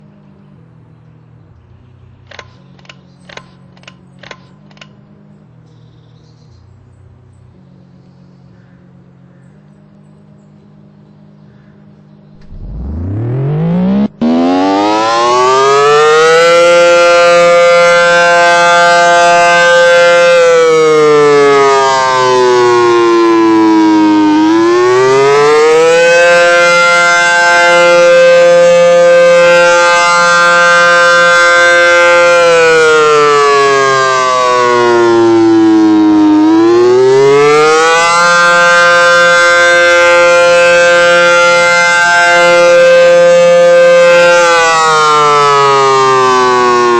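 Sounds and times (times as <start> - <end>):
low hum: 0.0 - 46.9
sharp clicks: 2.2 - 5.0
siren wailing: 12.4 - 46.9.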